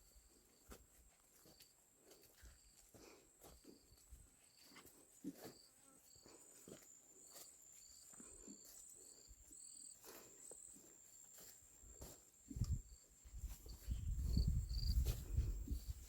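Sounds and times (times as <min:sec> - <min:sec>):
insect chirping: 0:05.5 - 0:16.0.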